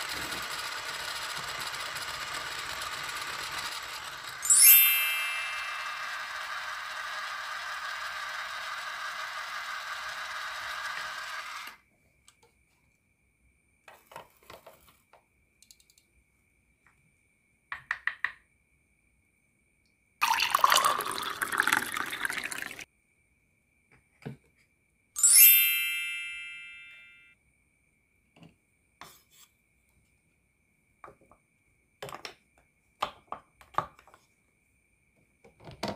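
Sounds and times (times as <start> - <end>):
toy mixer motor whirring: 0.0 - 11.8, 20.2 - 22.8
ringing chime: 4.4 - 6.4, 25.2 - 27.4
liquid pouring: 20.2 - 22.9.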